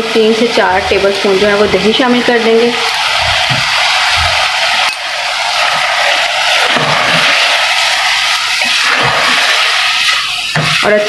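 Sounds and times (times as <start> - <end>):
meat sizzling in hot oil: 0.0 - 11.0
spoon stirring in a pot: 2.9 - 11.0.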